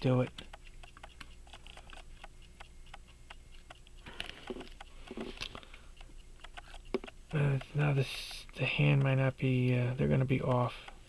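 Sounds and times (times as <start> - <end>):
pocket watch ticking: 0.0 - 11.0.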